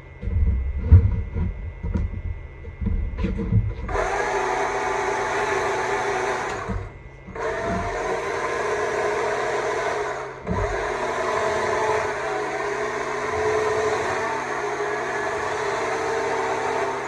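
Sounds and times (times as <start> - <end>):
electric chainsaw cutting wood: 3.9 - 17.0.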